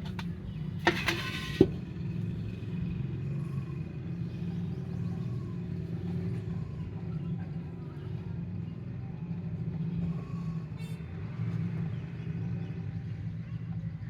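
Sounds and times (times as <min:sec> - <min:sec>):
vehicle engine humming: 0:00.0 - 0:08.4.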